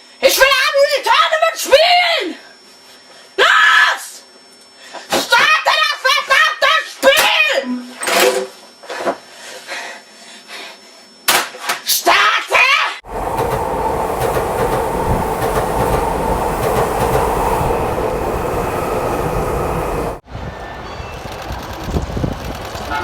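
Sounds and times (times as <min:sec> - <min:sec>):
train rumbling on rails: 0:13.0 - 0:23.0.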